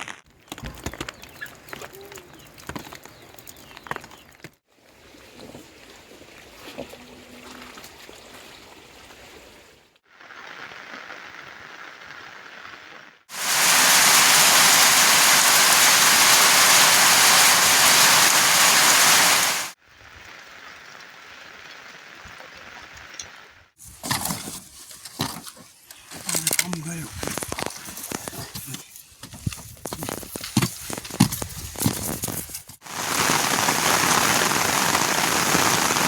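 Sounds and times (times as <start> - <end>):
outdoor background noise: 0.0 - 36.0
water rushing: 13.3 - 19.8, 32.8 - 36.0.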